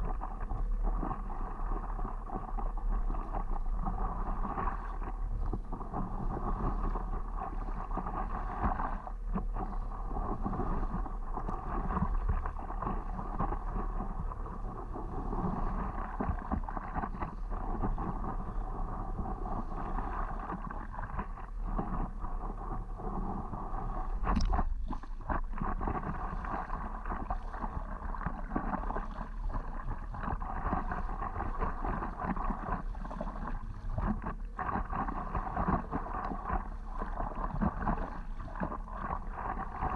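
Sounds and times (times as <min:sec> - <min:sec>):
water sloshing around paddleboard: 0:00.0 - 0:39.9
wind rumble on microphone: 0:00.0 - 0:39.9.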